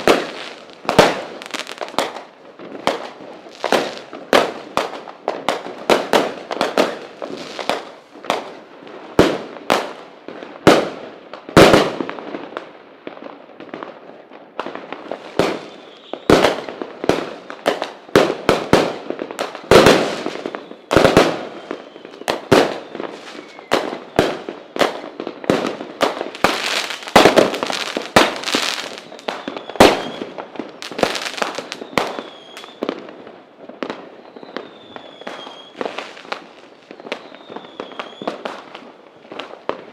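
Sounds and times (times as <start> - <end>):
firework bangs: 0.0 - 39.9
faint firework whistles: 15.0 - 16.8, 19.9 - 25.0, 26.2 - 33.1, 33.8 - 39.9.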